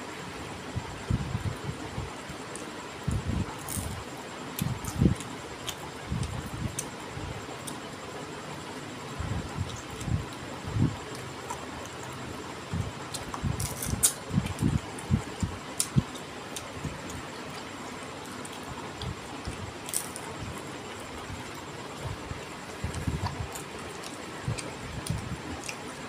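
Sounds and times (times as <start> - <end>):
man chewing food: 9.5 - 26.0.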